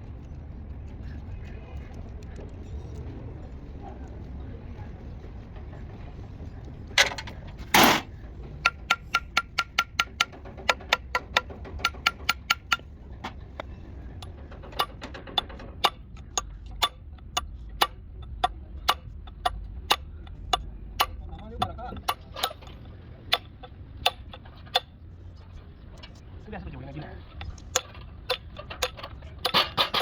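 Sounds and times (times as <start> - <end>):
metal tools tapping on metal: 7.0 - 13.4, 27.3 - 30.0.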